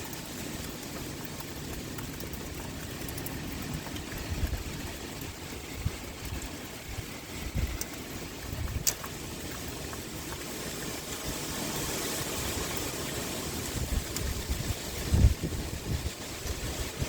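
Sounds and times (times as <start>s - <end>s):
rain pouring: 0.0s - 17.0s
gusty wind rumbling: 2.2s - 9.5s, 12.1s - 17.0s
sharp tick: 8.6s - 9.7s.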